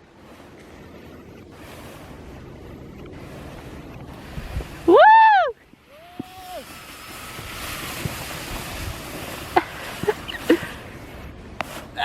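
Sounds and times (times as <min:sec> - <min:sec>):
sled scraping down icy snow: 0:00.0 - 0:12.0
person whooping: 0:04.9 - 0:06.6.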